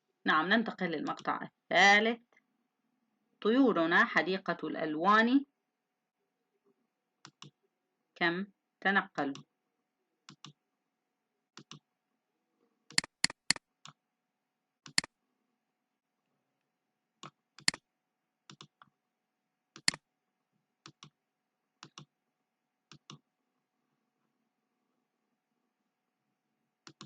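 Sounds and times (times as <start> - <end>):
sharp clicks: 12.9 - 13.6, 14.9 - 15.1.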